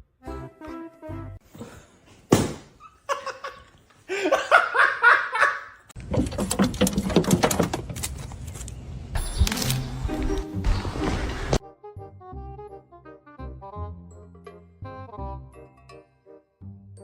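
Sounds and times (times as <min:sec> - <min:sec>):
person laughing: 0:02.8 - 0:05.8
clattering with clicks: 0:05.9 - 0:08.2.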